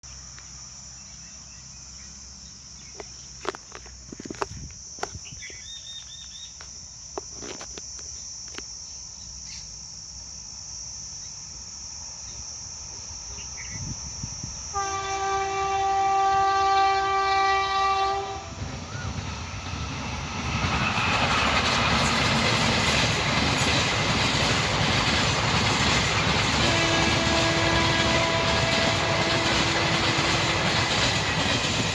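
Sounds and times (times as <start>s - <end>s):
train horn blast: 14.7s - 18.7s, 26.6s - 31.1s
train wheels and rail clatter: 17.4s - 31.9s.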